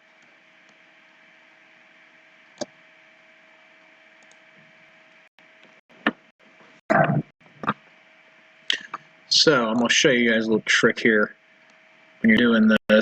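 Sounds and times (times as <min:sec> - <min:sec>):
faint steady hum: 0:00.0 - 0:13.0
computer mouse clicks: 0:02.6 - 0:02.8, 0:04.2 - 0:04.4.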